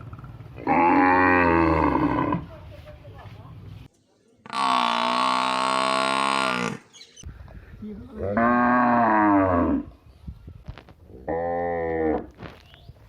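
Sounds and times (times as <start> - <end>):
cow mooing: 0.6 - 2.5, 4.5 - 6.8, 8.2 - 9.9.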